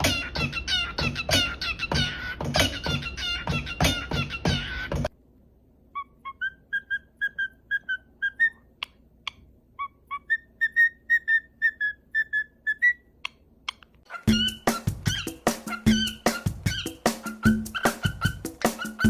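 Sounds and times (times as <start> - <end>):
parrot whistling a tune: 0.0 - 5.0, 5.9 - 8.9, 9.8 - 13.1, 13.7 - 19.0
music: 0.0 - 5.1, 14.3 - 19.0.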